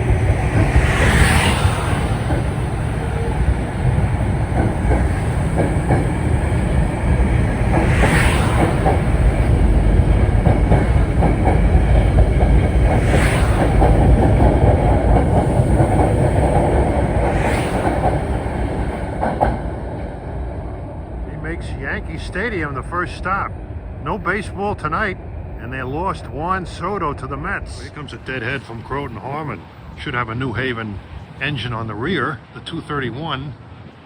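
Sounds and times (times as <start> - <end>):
wheels clacking over rail joints: 0.0 - 20.6
train rumble: 0.0 - 34.0.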